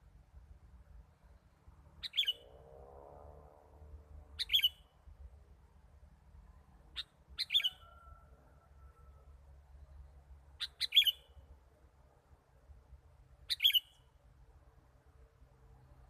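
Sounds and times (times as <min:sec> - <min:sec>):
bird chirps: 0:02.0 - 0:02.6, 0:04.4 - 0:05.0, 0:06.9 - 0:08.2, 0:09.8 - 0:11.4, 0:13.4 - 0:14.2.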